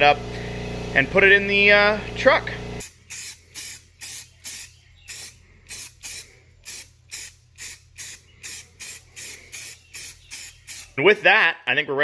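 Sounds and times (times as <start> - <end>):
air blow gun hissing blasts: 2.6 - 11.0.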